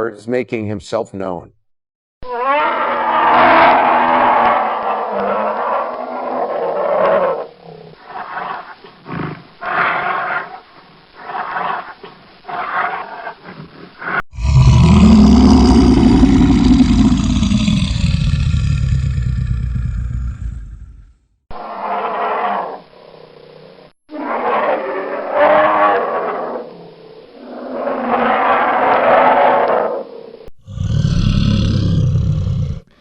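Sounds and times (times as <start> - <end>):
bear roaring: 14.3 - 22.8, 27.4 - 33.0.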